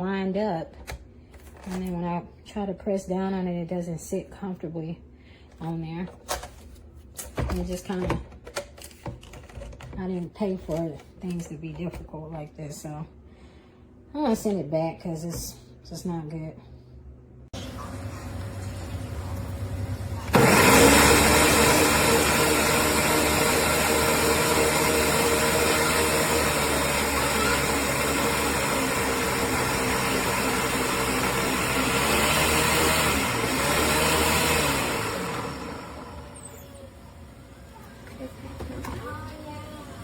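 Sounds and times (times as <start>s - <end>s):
blender motor whining: 17.6s - 39.1s.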